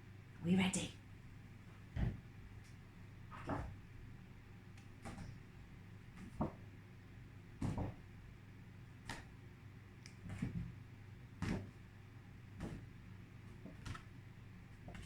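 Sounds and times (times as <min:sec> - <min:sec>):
faint room hum: 0:00.0 - 0:15.0
cards tapping and knocking: 0:12.6 - 0:12.9.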